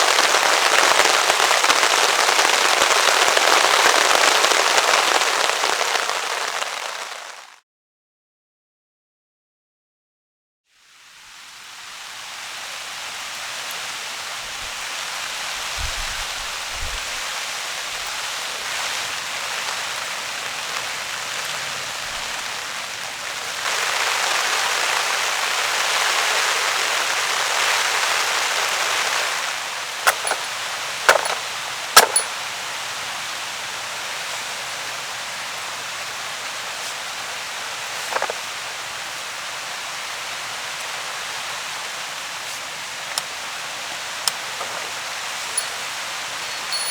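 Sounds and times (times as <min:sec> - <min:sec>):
steady rain falling: 0:00.0 - 0:07.6, 0:10.7 - 0:46.9
sharp cracks or taps: 0:30.1 - 0:30.5, 0:32.0 - 0:32.3.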